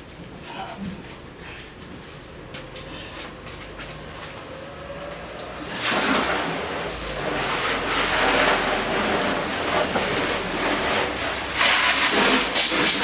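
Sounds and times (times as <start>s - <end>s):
water spraying: 5.5s - 13.0s.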